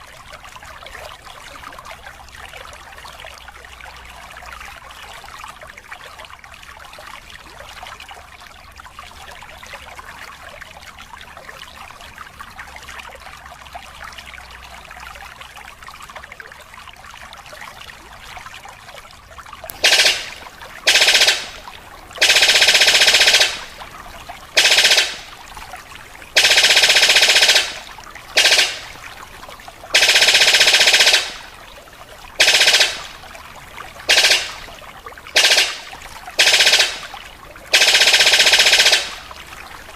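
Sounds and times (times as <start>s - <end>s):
buzzy trilling bird call: 19.8s - 21.6s, 26.4s - 29.0s, 35.4s - 37.2s.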